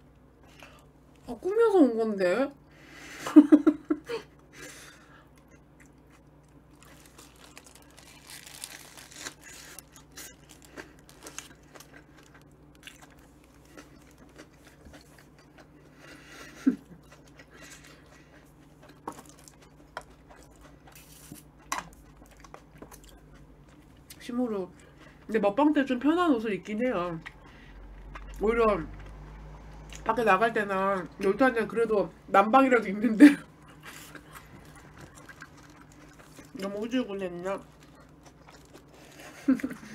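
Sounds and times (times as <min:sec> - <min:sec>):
person chewing crunchy food: 0:05.0 - 0:25.3, 0:33.5 - 0:39.9
crinkling rustles: 0:06.5 - 0:14.4, 0:37.6 - 0:39.8.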